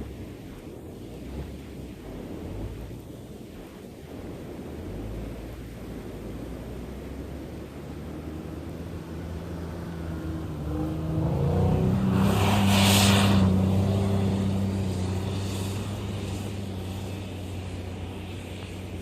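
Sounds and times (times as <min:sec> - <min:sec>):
engine revving under load: 0:04.8 - 0:19.0
brief hissing rush: 0:12.0 - 0:18.4.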